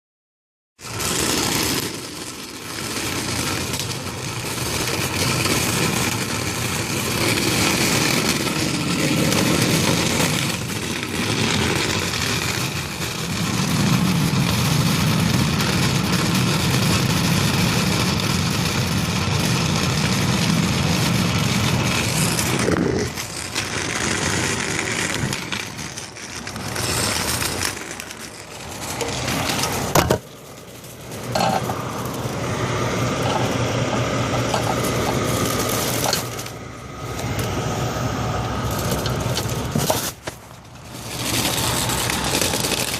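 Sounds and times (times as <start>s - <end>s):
diesel engines idling: 0.8s - 42.9s.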